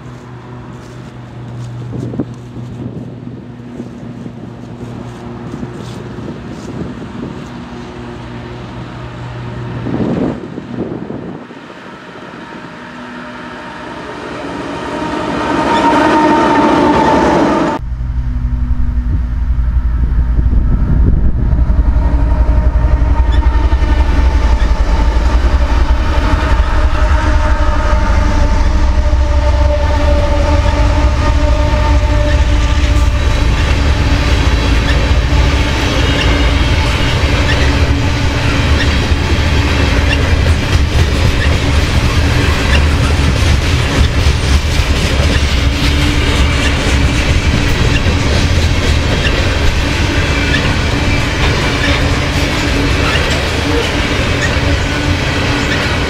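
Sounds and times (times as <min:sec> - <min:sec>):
train horn: 0:03.7 - 0:56.0
deep diesel rumble: 0:17.8 - 0:55.6.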